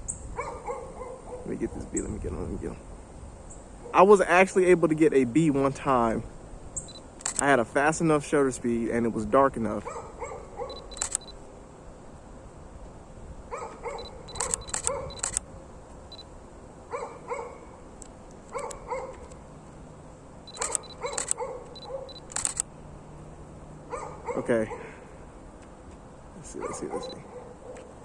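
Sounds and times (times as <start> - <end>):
dog barking: 0.4 - 1.8, 9.8 - 10.9, 13.5 - 15.2, 16.9 - 17.8, 18.5 - 19.3, 20.6 - 22.2, 23.9 - 25.0, 26.5 - 27.9
camera focus beeps: 6.8 - 7.5, 10.7 - 11.4, 14.0 - 16.3, 20.5 - 22.7
camera shutter clicks: 6.9 - 7.6, 10.7 - 11.4, 14.0 - 16.2, 20.5 - 22.7.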